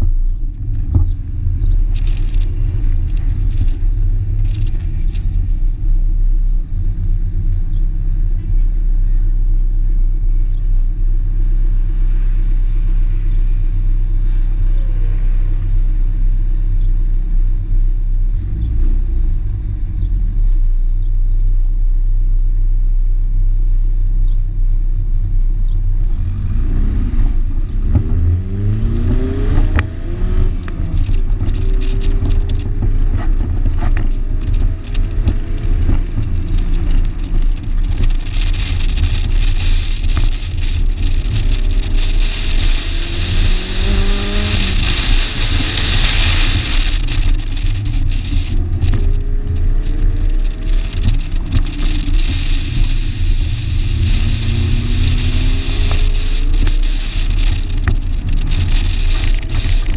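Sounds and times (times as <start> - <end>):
car engine revving under load: 25.2 - 59.9.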